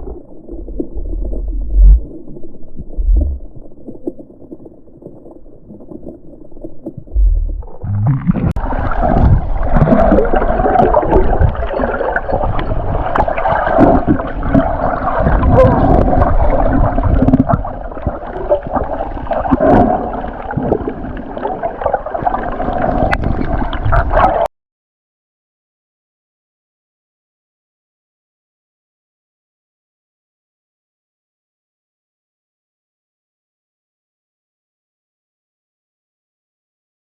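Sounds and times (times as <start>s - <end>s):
water gurgling and rumbling: 0.0s - 24.5s.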